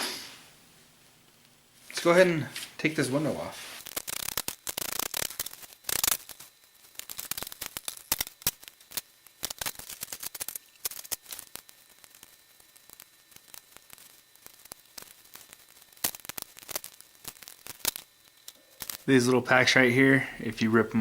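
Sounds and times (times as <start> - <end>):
plastic casing cracking: 3.8 - 19.1
plastic parts clicking and rattling: 3.9 - 19.1.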